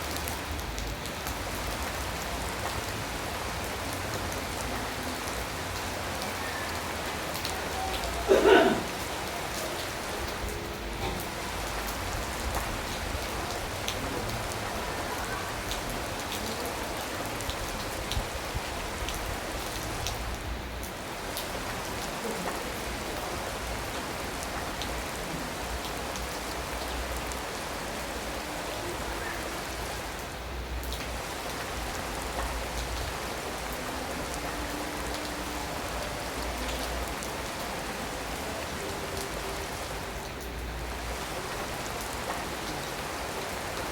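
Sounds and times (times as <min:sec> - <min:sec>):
raindrops tapping: 0:00.0 - 0:43.9
steady rain hiss: 0:00.0 - 0:43.9.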